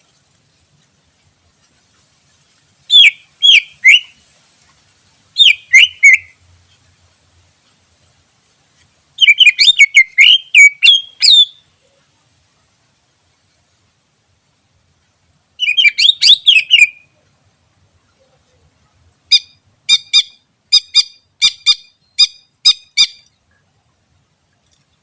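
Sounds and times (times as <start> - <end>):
bird singing whistled notes: 2.9 - 4.2, 5.4 - 6.4, 9.2 - 11.7, 15.6 - 17.2, 19.3 - 23.4.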